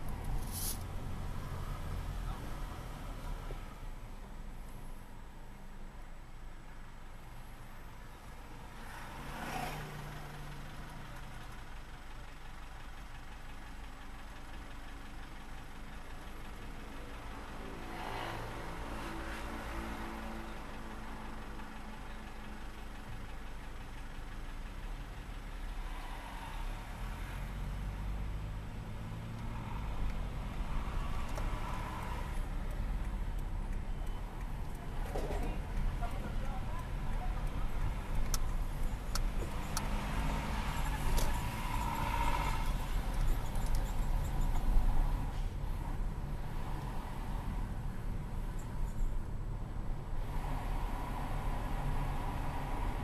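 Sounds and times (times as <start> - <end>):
vehicle driving: 17.5 - 53.0.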